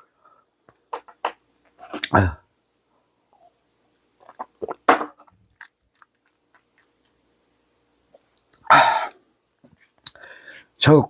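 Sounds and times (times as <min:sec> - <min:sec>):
chewing clicks: 0:05.6 - 0:07.4.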